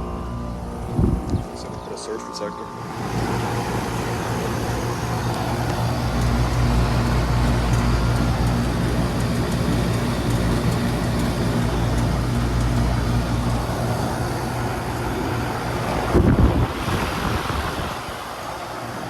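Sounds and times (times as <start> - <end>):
low rumble: 0.0 - 14.2
air conditioner compressor humming: 0.0 - 19.0.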